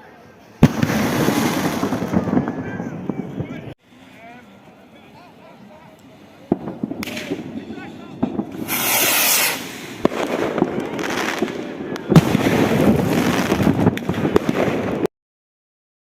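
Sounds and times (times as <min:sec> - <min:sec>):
fireworks hissing crackle: 0:00.2 - 0:15.1
fireworks bangs: 0:00.6 - 0:03.7, 0:06.0 - 0:15.1.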